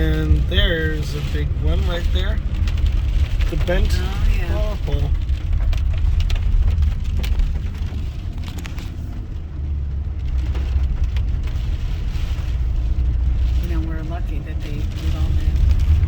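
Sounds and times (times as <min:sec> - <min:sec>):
car driving rumble: 0:00.0 - 0:16.0.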